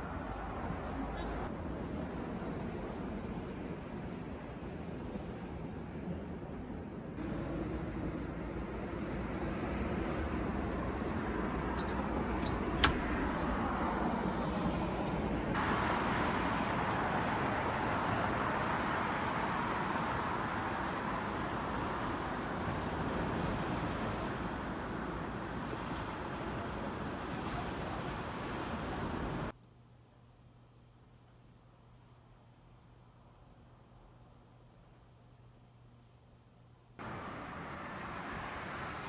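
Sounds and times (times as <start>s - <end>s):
vehicle rumbling on road: 0.0s - 1.5s, 7.2s - 29.5s, 37.0s - 39.0s.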